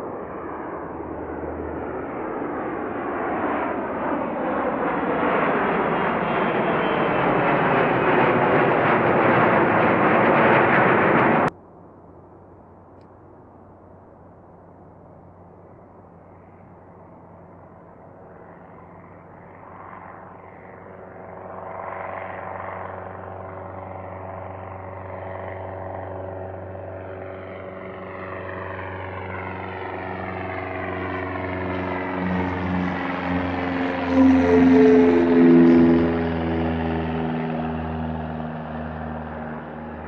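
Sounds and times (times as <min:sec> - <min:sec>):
aircraft engine drone: 0:00.0 - 0:40.0.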